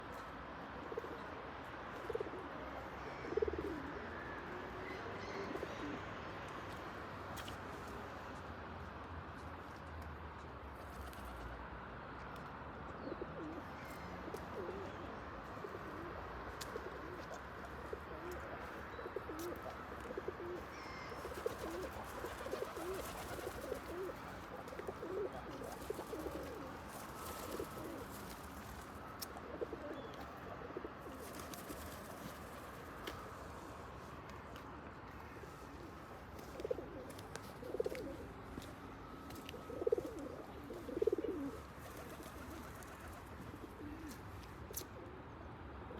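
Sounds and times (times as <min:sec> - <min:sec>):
pigeons cooing: 0:00.7 - 0:06.2, 0:13.0 - 0:33.0, 0:35.7 - 0:38.4, 0:39.5 - 0:45.2.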